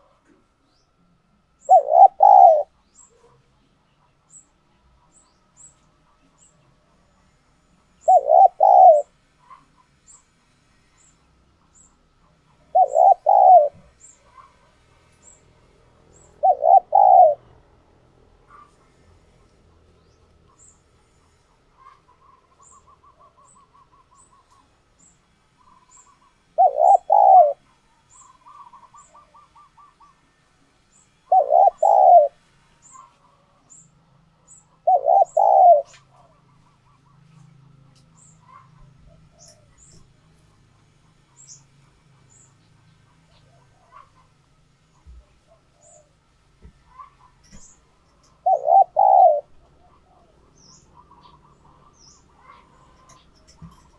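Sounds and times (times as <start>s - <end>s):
soft trilling bird notes: 1.6s - 2.6s, 8.1s - 9.0s, 12.8s - 13.8s, 16.3s - 17.4s, 25.6s - 27.6s, 31.3s - 32.3s, 34.9s - 35.9s
dove cooing: 1.6s - 3.4s, 8.0s - 9.7s, 12.4s - 15.4s, 16.0s - 19.3s, 25.6s - 30.3s, 31.2s - 33.1s, 34.5s - 37.5s, 46.9s - 53.9s.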